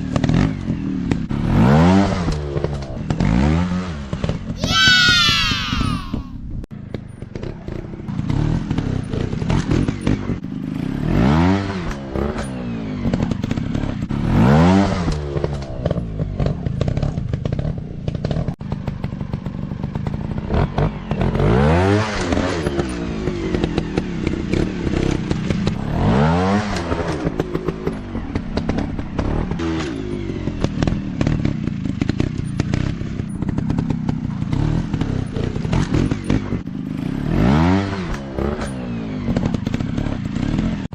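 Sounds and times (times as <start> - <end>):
dirt bike engine revving: 20.5 - 40.9.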